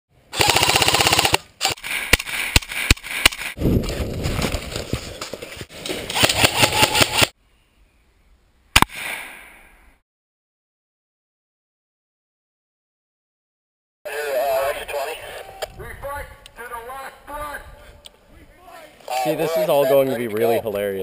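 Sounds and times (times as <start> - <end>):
automatic gunfire: 0.4 - 1.4, 6.2 - 7.3.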